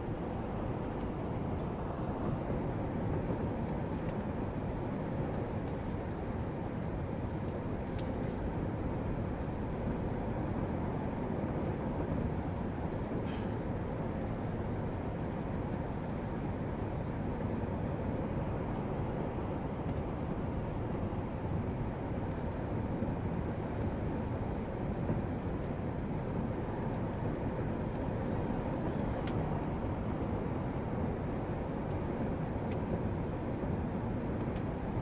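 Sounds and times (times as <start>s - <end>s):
airliner engine roar in cabin: 0.0s - 35.0s.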